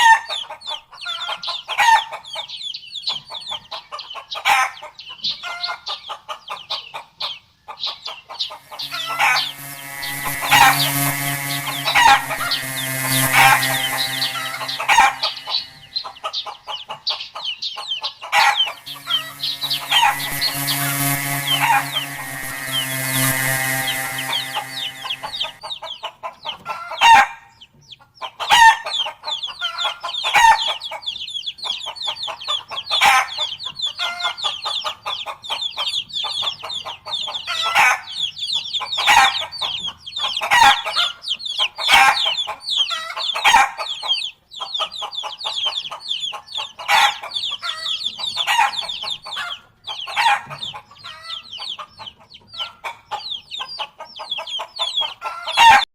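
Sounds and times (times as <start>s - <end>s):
flock of chickens clucking: 0.0s - 8.7s, 25.9s - 55.8s.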